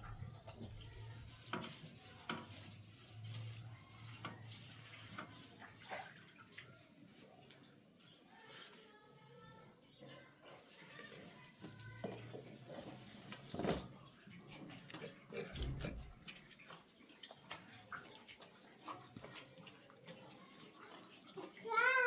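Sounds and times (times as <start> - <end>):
water splashing hand washing: 0.0 - 8.0, 10.6 - 22.0.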